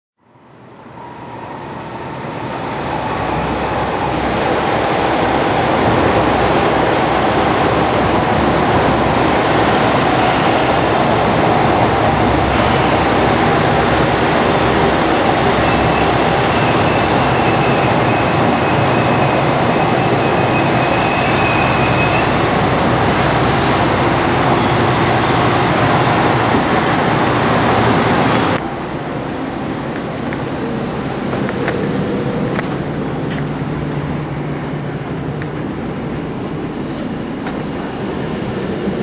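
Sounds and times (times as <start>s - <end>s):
diesel train rumbling: 0.5s - 39.0s
brake squeal: 15.6s - 24.0s.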